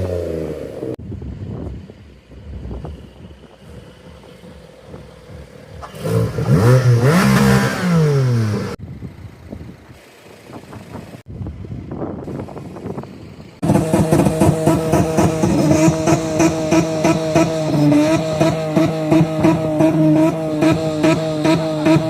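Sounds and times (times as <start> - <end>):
car engine revving: 2.7 - 8.8, 13.5 - 22.0.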